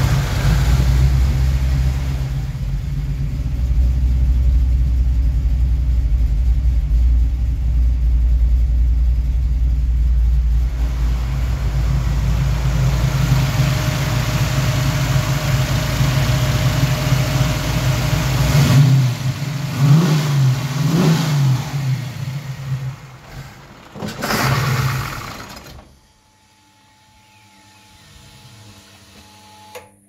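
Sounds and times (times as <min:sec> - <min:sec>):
engine revving: 0:00.0 - 0:02.7, 0:10.7 - 0:25.9.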